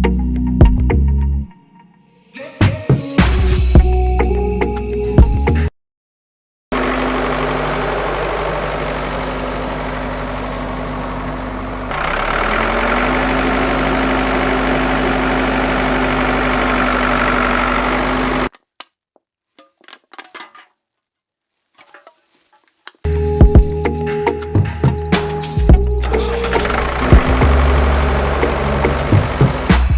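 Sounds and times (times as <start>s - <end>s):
small motor humming: 6.8s - 18.5s, 26.0s - 29.9s.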